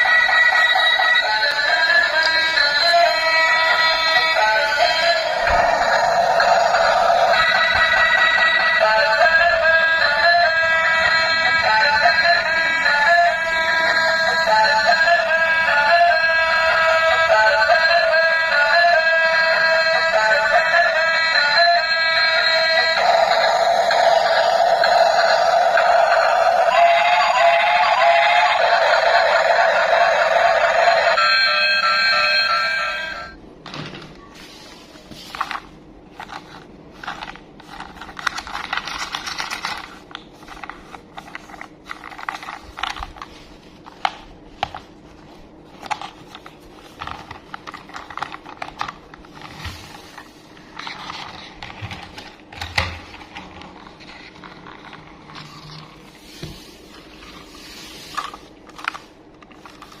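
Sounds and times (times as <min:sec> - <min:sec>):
toy packaging rustling: 0:00.0 - 0:17.8, 0:34.4 - 1:00.0.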